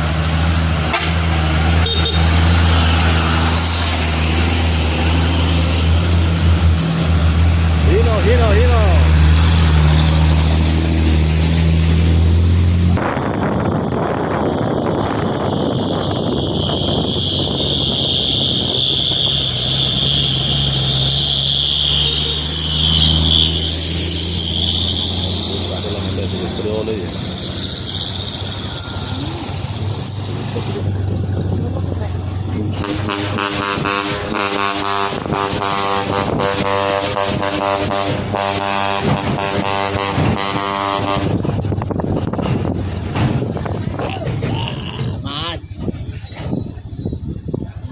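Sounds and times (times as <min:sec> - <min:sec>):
diesel truck engine under load: 0:00.0 - 0:47.9
rumbling road noise: 0:00.0 - 0:47.9
high-pitched whine: 0:22.5 - 0:31.1.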